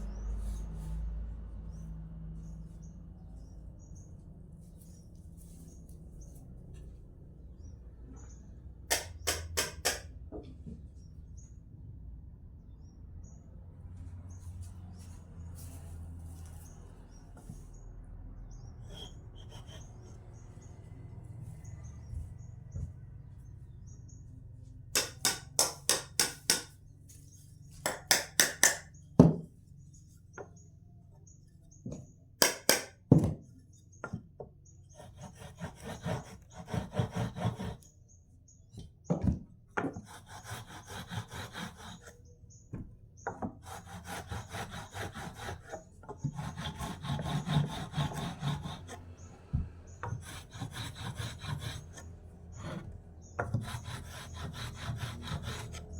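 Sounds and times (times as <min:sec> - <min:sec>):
hand tool sawing wood: 0:34.9 - 0:37.9, 0:39.9 - 0:42.2, 0:43.4 - 0:49.2, 0:50.0 - 0:55.9.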